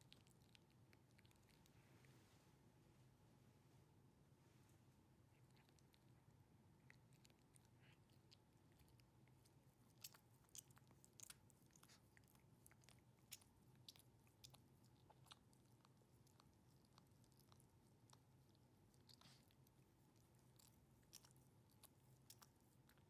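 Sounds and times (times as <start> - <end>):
dog licking and nibbling fur: 0.0 - 2.3, 5.3 - 23.0.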